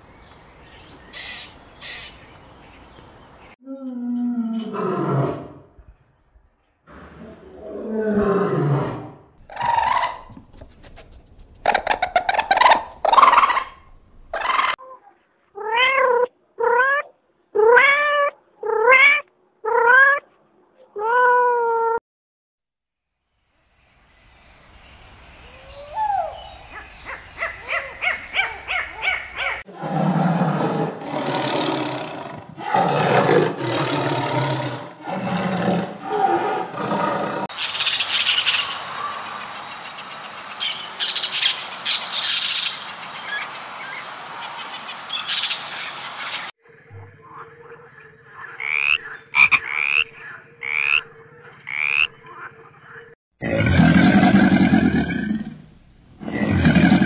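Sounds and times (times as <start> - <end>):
tiger growling and roaring: 6.9 - 9.6, 29.7 - 37.5, 53.4 - 57.0
frog chirping: 46.6 - 53.2.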